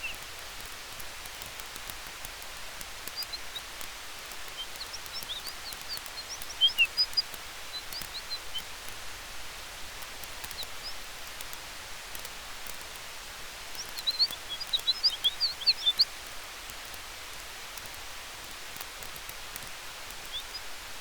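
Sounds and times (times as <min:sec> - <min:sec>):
campfire crackling: 0:00.0 - 0:21.0
wind in trees: 0:00.0 - 0:21.0
rapid high chirps: 0:04.5 - 0:08.7, 0:13.8 - 0:16.1.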